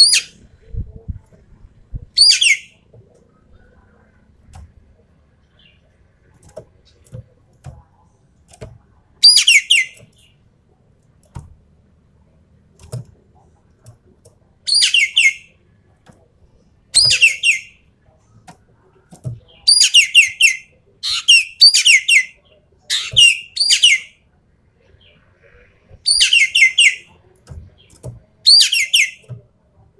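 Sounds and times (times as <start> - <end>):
bird calling in high bursts: 14.7 - 15.5, 19.7 - 24.2, 26.0 - 27.0, 28.5 - 29.2.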